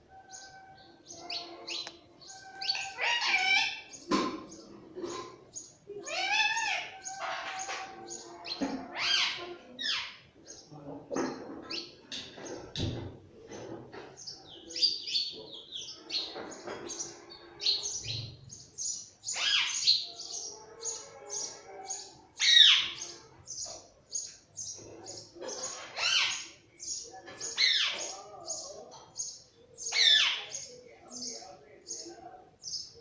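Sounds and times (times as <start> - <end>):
parrot chirping: 0.2 - 4.0, 6.1 - 10.2
parrot squawking: 0.2 - 4.0, 6.0 - 10.2, 19.3 - 21.0, 22.4 - 23.2, 25.6 - 26.6.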